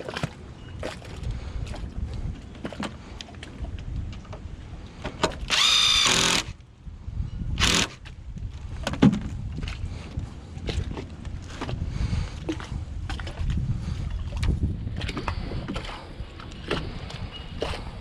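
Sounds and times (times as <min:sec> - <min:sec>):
power drill spinning up: 0:05.5 - 0:06.6, 0:07.6 - 0:08.0
wind rumble: 0:05.5 - 0:18.0.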